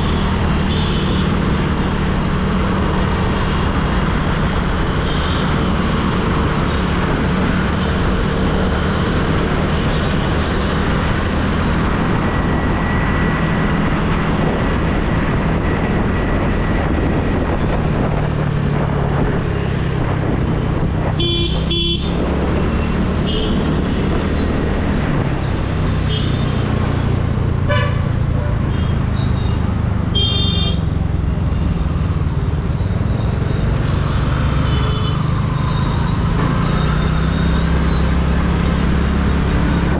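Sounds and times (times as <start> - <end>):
road and wind noise: 0.0 - 39.9
vehicle horn honks: 21.2 - 22.1, 27.7 - 28.1, 30.1 - 30.9.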